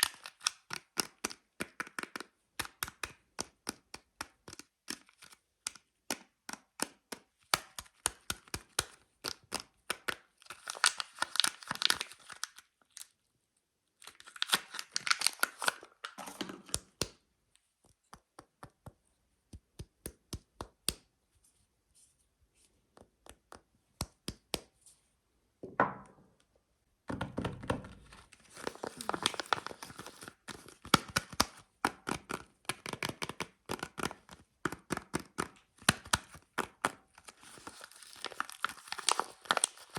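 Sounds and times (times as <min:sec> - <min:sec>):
wrapper crinkling and tearing: 0:10.4 - 0:13.1, 0:14.0 - 0:16.9, 0:28.4 - 0:31.6, 0:35.9 - 0:39.9
sharp clicks and taps: 0:16.6 - 0:21.1, 0:22.9 - 0:24.7.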